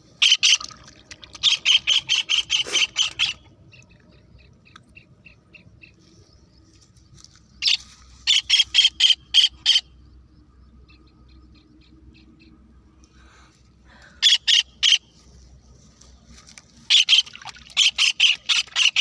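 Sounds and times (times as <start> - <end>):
harsh bird calls: 1.4 - 6.3, 7.6 - 10.0, 13.9 - 15.2.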